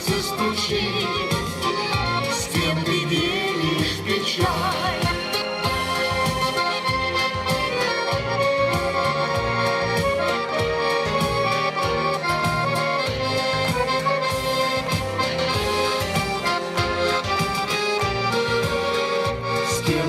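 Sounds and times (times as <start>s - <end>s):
person singing: 0.0s - 6.6s, 19.5s - 20.0s
accordion playing: 0.0s - 20.0s.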